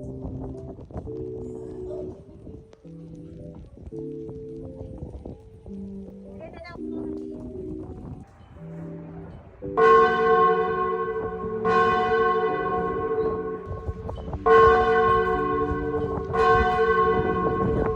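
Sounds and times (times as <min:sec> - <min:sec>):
bell ringing: 0:08.3 - 0:17.9.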